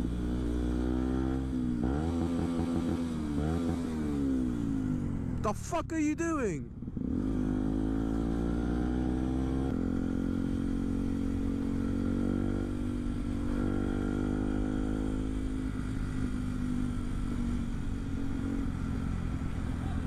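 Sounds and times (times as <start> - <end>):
another motorcycle engine steady: 0.0 - 5.4, 6.3 - 20.0
motorcycle engine running: 6.4 - 20.0.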